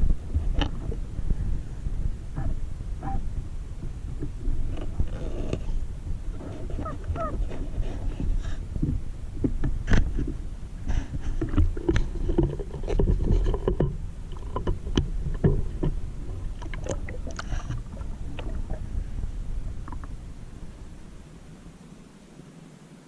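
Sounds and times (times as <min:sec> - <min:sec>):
muffled underwater rumble: 0:00.0 - 0:23.0
scattered underwater clicks and knocks: 0:00.3 - 0:01.4, 0:03.8 - 0:18.8, 0:19.8 - 0:20.2.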